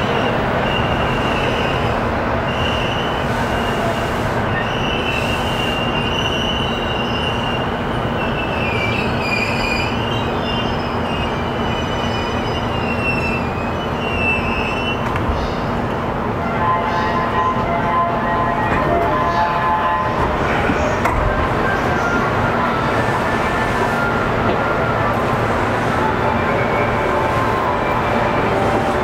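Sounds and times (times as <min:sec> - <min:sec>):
high wheel squeal: 0:02.5 - 0:15.6.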